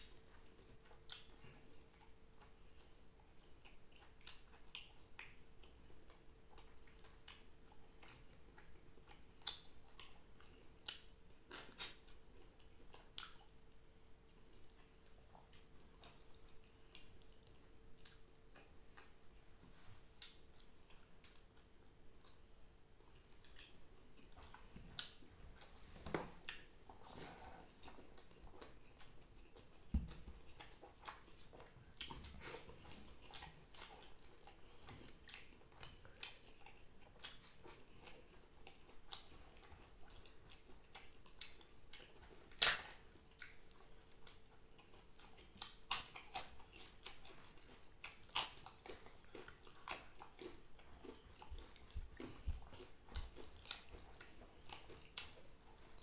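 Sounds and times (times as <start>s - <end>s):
wet chewing: 20.2s - 56.0s.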